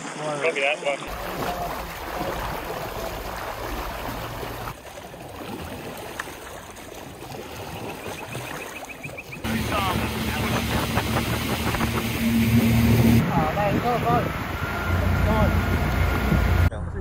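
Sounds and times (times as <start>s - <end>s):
rushing floodwater: 0.0s - 16.6s
low engine hum: 9.4s - 17.0s.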